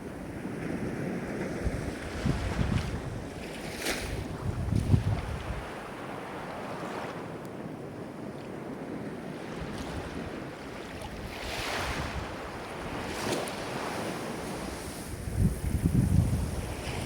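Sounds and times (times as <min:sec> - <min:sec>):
wind rumbling on microphone: 0:00.0 - 0:17.0
ocean waves breaking: 0:08.6 - 0:17.0.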